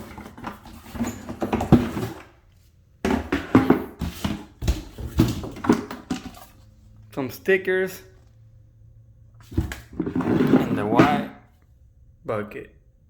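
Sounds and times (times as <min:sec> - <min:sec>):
knocks and thumps of products: 0:00.0 - 0:02.3, 0:03.0 - 0:06.5, 0:09.4 - 0:11.4.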